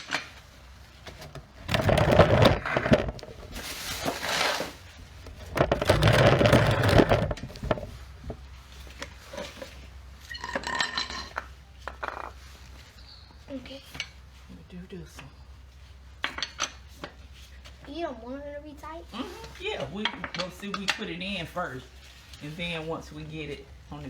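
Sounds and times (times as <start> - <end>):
metal clattering of wrench on bolts: 10.3 - 12.3, 19.9 - 21.2.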